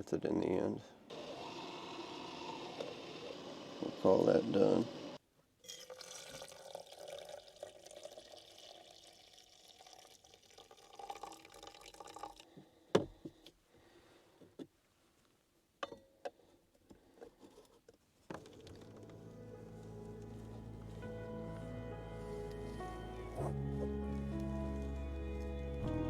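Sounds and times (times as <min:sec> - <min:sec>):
liquid pouring into a cup: 0:05.7 - 0:12.4.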